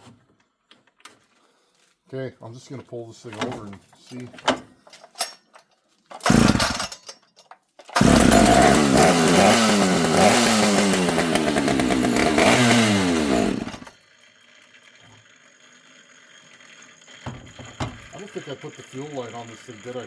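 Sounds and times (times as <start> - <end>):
chainsaw starting and running: 6.2 - 7.0, 7.9 - 17.4, 18.0 - 20.0.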